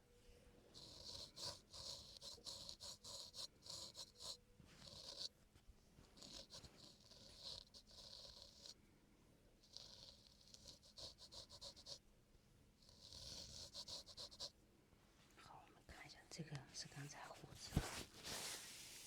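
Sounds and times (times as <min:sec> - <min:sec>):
razor scraping skin: 0:00.8 - 0:05.3, 0:06.1 - 0:08.8, 0:09.6 - 0:12.0, 0:12.8 - 0:14.5.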